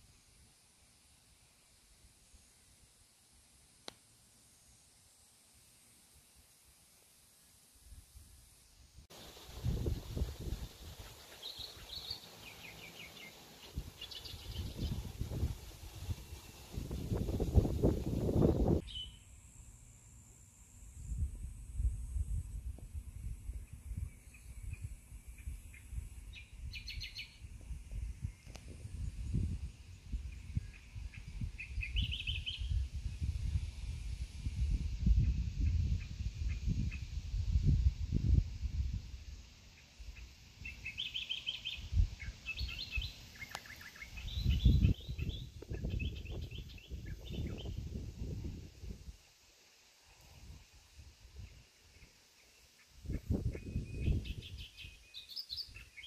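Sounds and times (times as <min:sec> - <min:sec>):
bird chirping: 0:09.2 - 0:15.5, 0:16.1 - 0:19.3, 0:23.6 - 0:27.4, 0:30.2 - 0:32.9, 0:39.8 - 0:47.9, 0:51.4 - 0:56.0.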